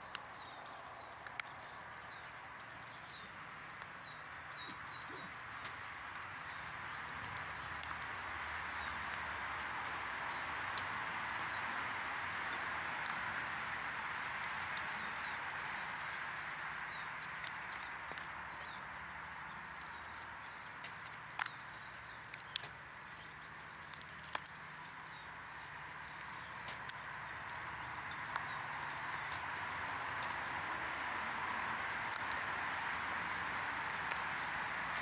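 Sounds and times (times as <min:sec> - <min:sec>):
background hiss: 0:00.0 - 0:35.0
small birds chirping: 0:00.0 - 0:35.0
sharp taps and clicks: 0:22.3 - 0:22.8, 0:23.9 - 0:25.2, 0:31.4 - 0:32.4, 0:33.2 - 0:35.0.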